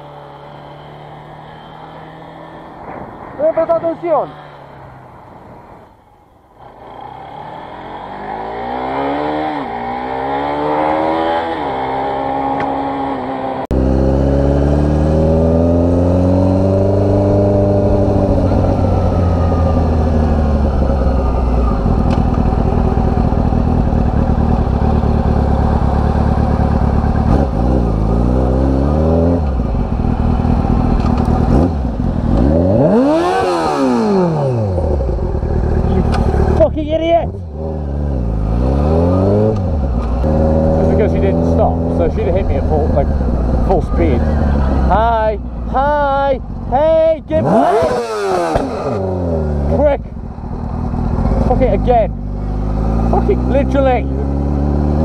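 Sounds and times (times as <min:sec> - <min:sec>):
motorcycle engine accelerating: 0:00.0 - 0:05.4, 0:06.6 - 0:55.0
road and wind noise: 0:00.0 - 0:55.0.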